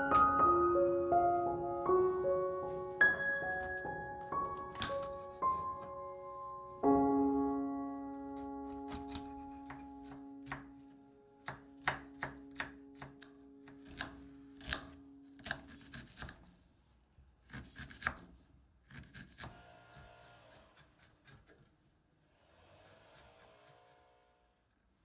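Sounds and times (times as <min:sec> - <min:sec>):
held piano chord: 0:00.0 - 0:13.7
knife chopping on cutting board: 0:04.5 - 0:05.6, 0:08.6 - 0:10.7, 0:11.4 - 0:16.4.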